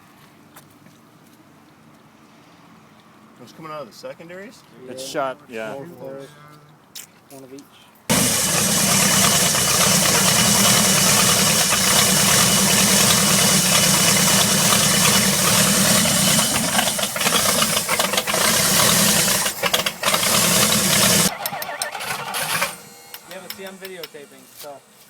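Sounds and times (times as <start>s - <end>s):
car engine running loudly: 8.1s - 21.4s.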